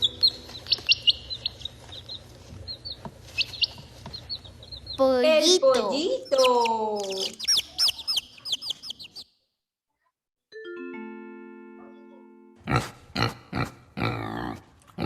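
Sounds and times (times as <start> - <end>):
chicks peeping: 0.0 - 9.4
pig grunting: 12.6 - 15.0.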